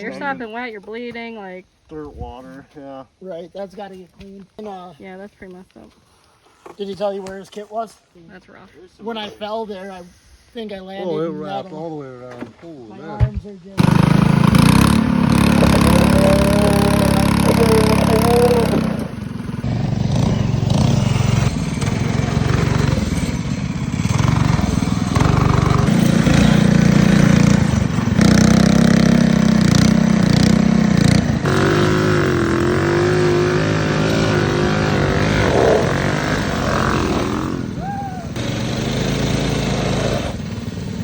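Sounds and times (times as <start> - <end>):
mini bike engines revving: 13.8 - 41.0.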